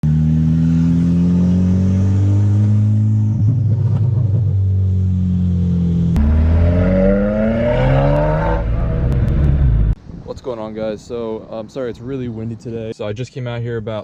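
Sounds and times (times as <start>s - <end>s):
car engine running: 5.0s - 10.0s.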